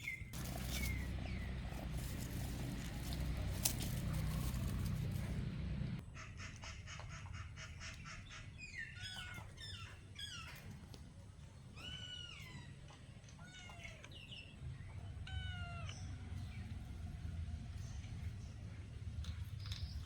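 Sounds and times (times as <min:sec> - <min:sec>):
cats meowing: 0:11.8 - 0:16.6.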